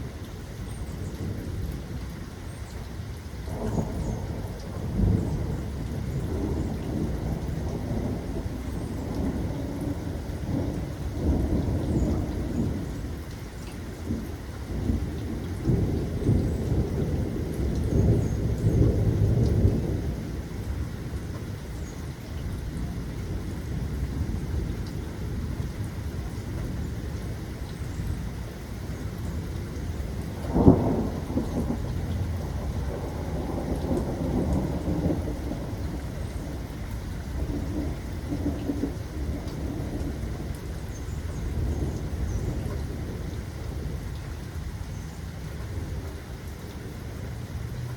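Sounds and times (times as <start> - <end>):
steady rain: 0.0 - 47.9
rolling thunder: 3.5 - 13.0, 29.0 - 44.9.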